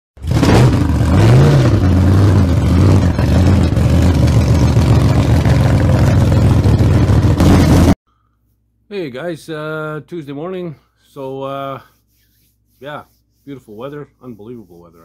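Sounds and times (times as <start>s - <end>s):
vehicle engine running and revving: 0.2s - 8.0s.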